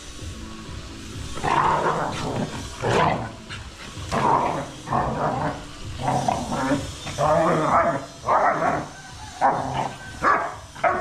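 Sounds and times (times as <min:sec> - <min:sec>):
dog barking: 0:09.4 - 0:11.0.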